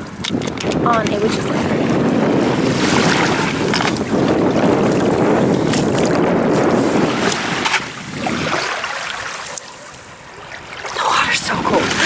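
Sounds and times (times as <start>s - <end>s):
waves in the shallows: 0.0s - 12.0s
wind buffeting microphone: 0.0s - 12.0s.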